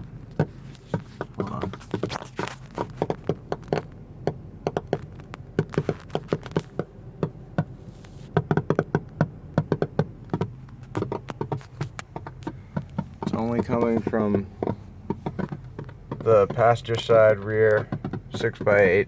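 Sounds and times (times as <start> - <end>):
low steady hum: 0.0 - 19.0
speaker popping and crackling: 0.0 - 19.0.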